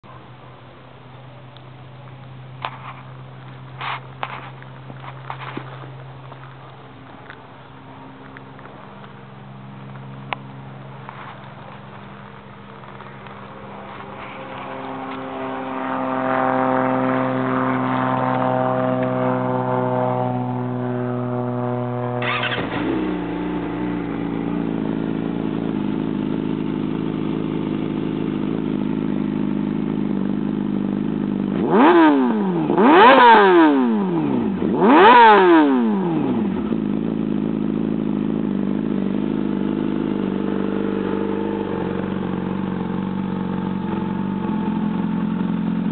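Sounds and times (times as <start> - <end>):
motorcycle engine revving: 2.3 - 45.9.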